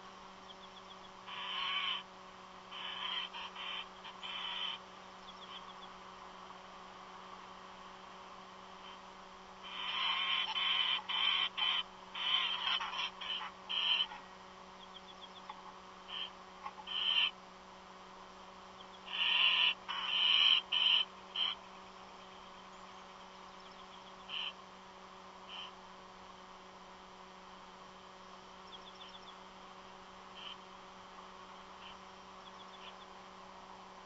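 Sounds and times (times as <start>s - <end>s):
low electrical hum: 0.0s - 34.0s
bird hissing screech calls: 1.3s - 2.0s, 2.7s - 4.8s, 9.6s - 14.2s, 19.0s - 21.6s.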